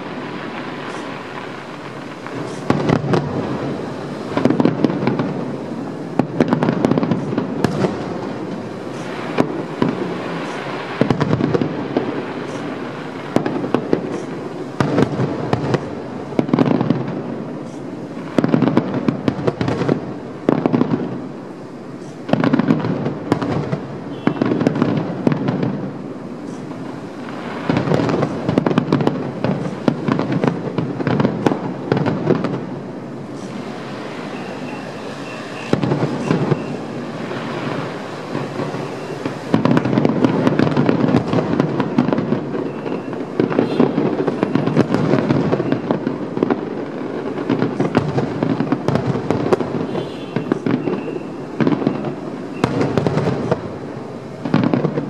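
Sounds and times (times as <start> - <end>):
fireworks booms and bangs: 0.0 - 55.0.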